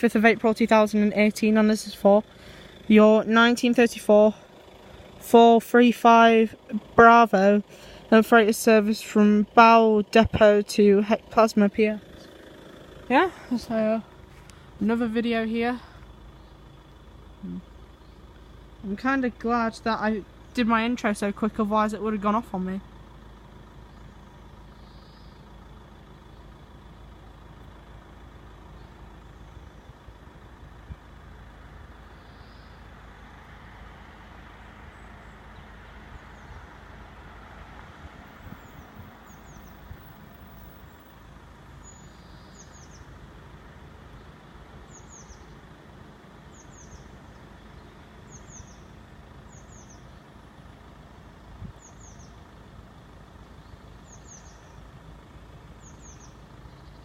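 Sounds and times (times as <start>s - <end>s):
road traffic hum: 0.0s - 57.0s
vehicle passing: 0.0s - 57.0s
bird chirping: 13.1s - 22.6s, 23.8s - 30.2s, 32.0s - 32.9s, 38.4s - 41.2s, 41.8s - 43.2s, 44.1s - 45.7s, 46.4s - 55.0s, 55.7s - 57.0s.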